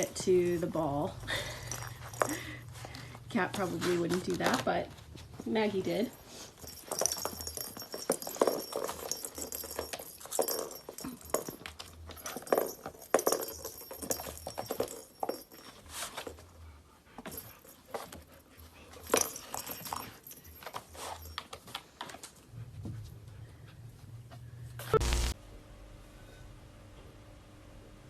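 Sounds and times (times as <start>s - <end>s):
balls rattling in cardboard toy: 6.6s - 15.7s.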